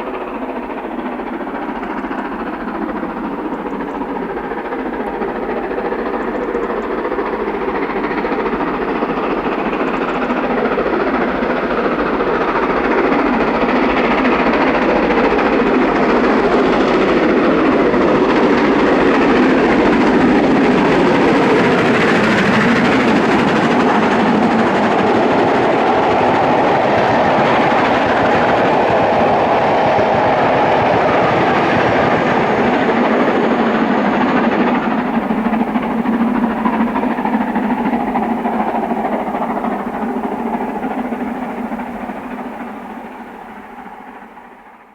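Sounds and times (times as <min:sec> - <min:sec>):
steam locomotive working hard: 0:00.0 - 0:44.9.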